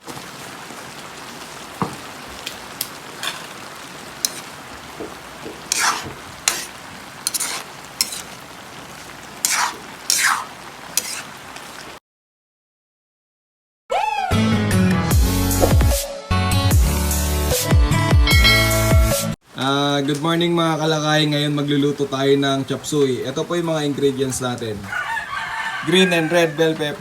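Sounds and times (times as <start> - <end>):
food sizzling in hot oil: 0.0 - 12.0, 20.8 - 27.0
spatula scraping a pan: 3.2 - 11.5.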